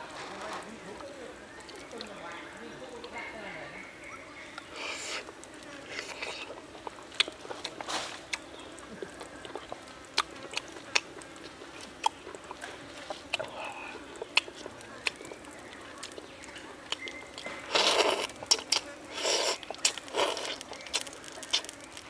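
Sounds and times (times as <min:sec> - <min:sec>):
man biting and chewing: 0:04.6 - 0:22.0.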